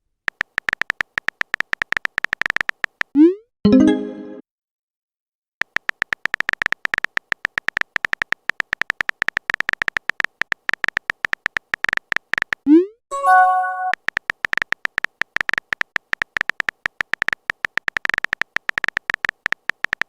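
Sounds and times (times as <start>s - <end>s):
phone keyboard clicks: 0.3s - 3.1s, 5.6s - 12.6s, 13.8s - 20.0s.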